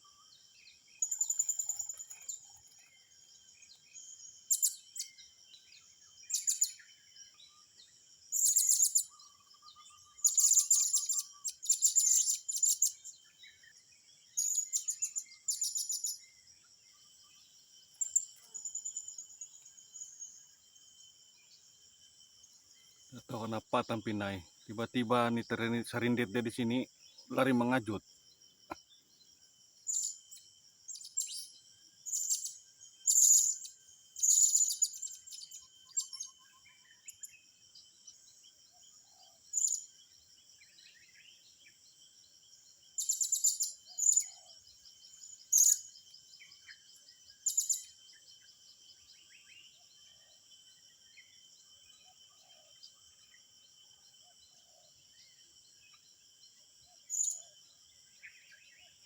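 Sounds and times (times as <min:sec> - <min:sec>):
high-pitched insect buzz: 0:29.8 - 0:37.4, 0:43.0 - 0:44.4.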